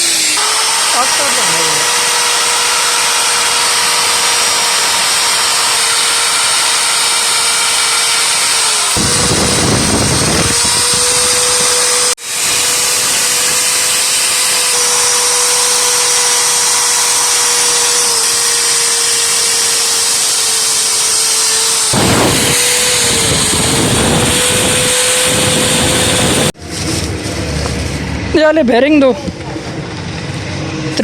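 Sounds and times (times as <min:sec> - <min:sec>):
power tool motor whining: 0:00.0 - 0:27.1
rough rasping noise: 0:00.0 - 0:28.3.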